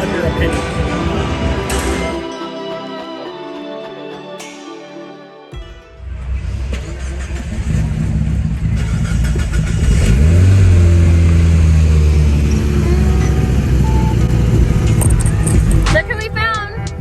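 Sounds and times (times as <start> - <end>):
car engine revving: 6.0 - 17.0.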